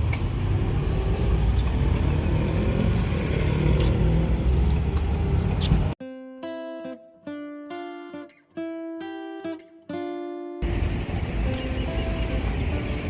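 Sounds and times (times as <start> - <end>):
truck engine rumbling: 0.0 - 6.0, 10.6 - 13.0
acoustic guitar music: 6.0 - 13.0.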